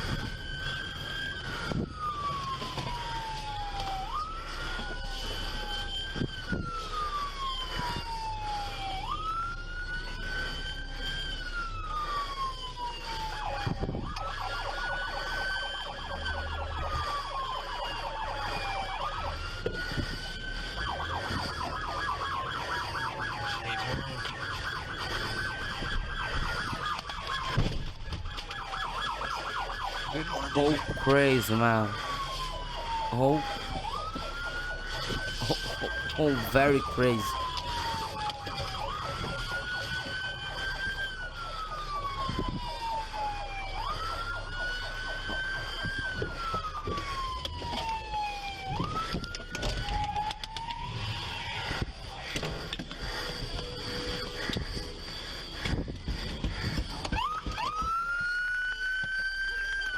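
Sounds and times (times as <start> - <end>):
police siren wailing: 0.0 - 19.6.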